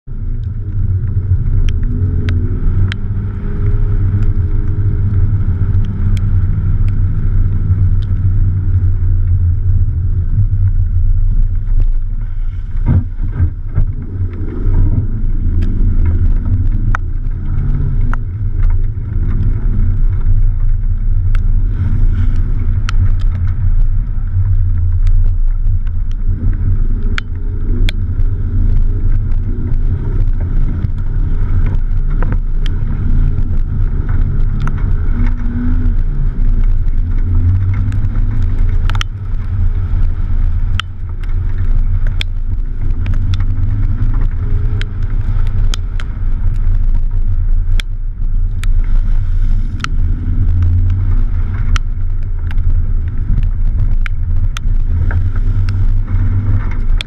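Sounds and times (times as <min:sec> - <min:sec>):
car engine running: 0:00.0 - 0:57.0
wind rumble on microphone: 0:00.0 - 0:57.0
knocks from rough track: 0:12.8 - 0:14.1.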